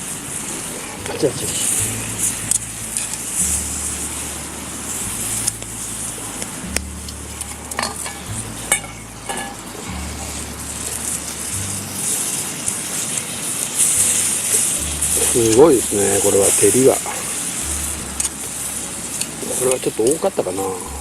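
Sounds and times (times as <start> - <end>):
chicken sizzling in a pan: 0.0 - 21.0
utensil clicking against pan: 2.2 - 3.4.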